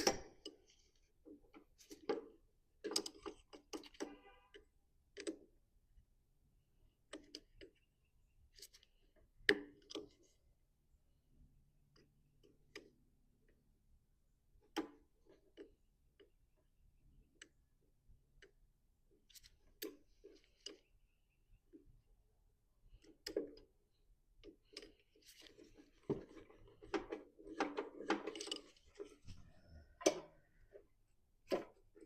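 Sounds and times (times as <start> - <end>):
tools and metal parts clicking: 26.7 - 29.2.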